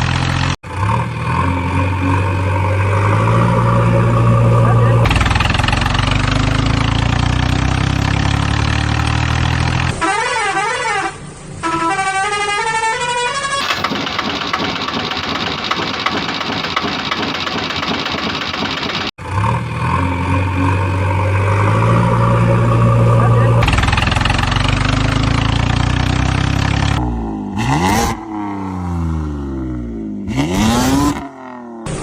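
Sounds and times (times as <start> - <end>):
vehicle engine running: 0.0 - 9.9, 13.6 - 27.6
rough rattling noise: 13.6 - 19.1.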